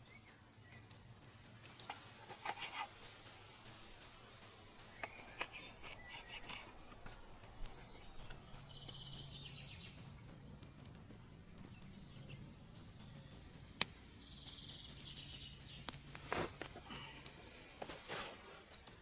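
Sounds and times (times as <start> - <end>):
high bird chirps: 4.9 - 10.6.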